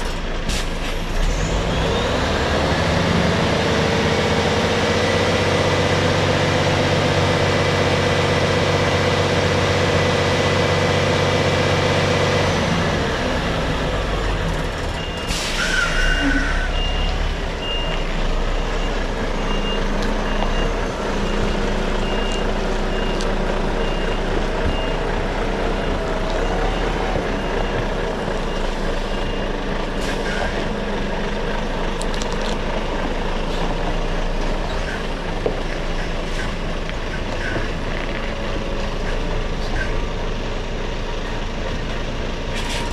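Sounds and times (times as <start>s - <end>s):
lorry diesel engine running: 0.0s - 42.9s
reversing alarm beeping: 13.6s - 30.6s.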